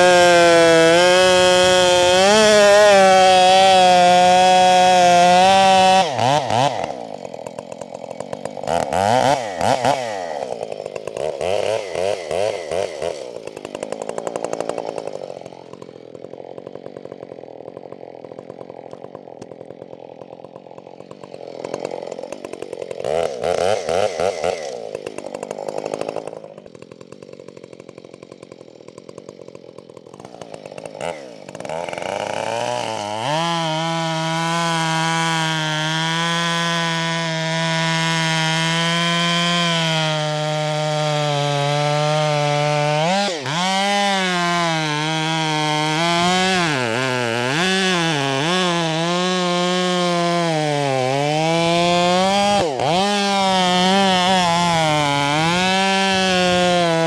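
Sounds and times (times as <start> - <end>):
chainsaw engine revving: 0.0 - 57.0.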